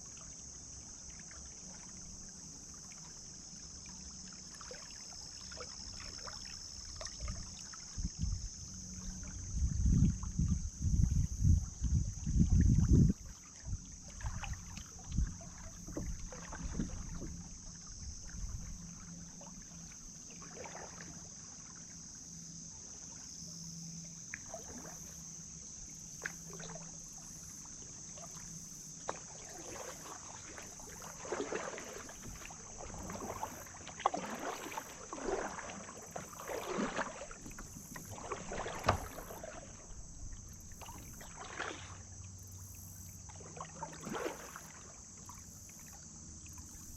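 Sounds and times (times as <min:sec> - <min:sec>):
paddle splashing in water: 0:00.0 - 0:22.0, 0:24.2 - 0:46.9
low rumble on microphone: 0:07.2 - 0:19.9.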